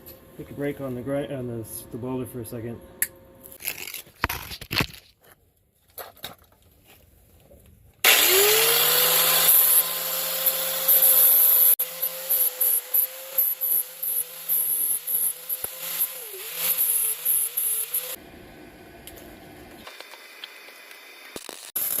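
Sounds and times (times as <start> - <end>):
angle grinder grinding steel: 8.1 - 18.2.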